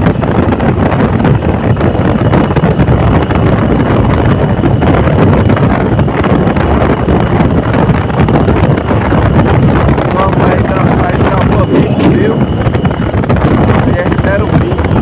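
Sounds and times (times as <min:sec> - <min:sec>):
wind buffeting microphone: 0:00.0 - 0:15.0
vehicle running: 0:10.8 - 0:13.4.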